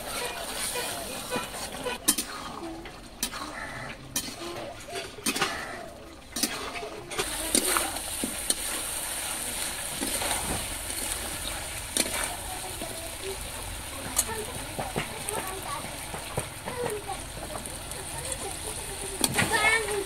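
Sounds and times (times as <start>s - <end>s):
spatula scraping and knocking pan: 0.0s - 5.7s, 6.3s - 13.4s, 14.0s - 18.5s
chicken frying in a pan: 0.0s - 20.0s.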